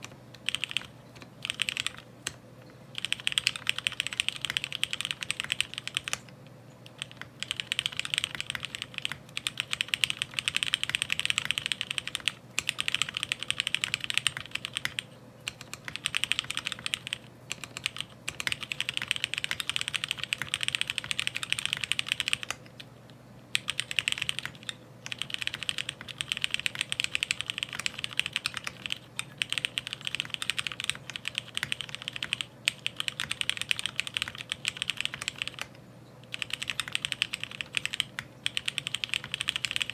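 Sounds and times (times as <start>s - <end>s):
fast mechanical keyboard typing: 0.0s - 22.6s, 23.5s - 39.9s.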